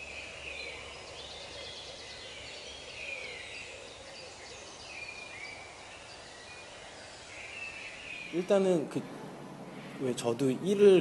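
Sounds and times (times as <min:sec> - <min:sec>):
steady low hum: 0:08.3 - 0:11.0.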